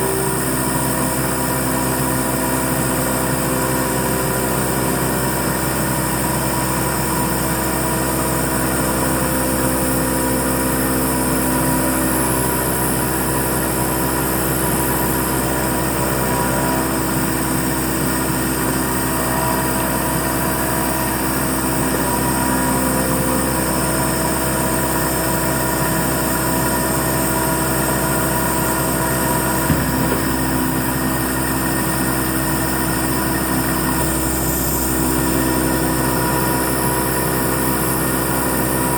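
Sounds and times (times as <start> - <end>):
milling machine running: 25.8 - 35.5.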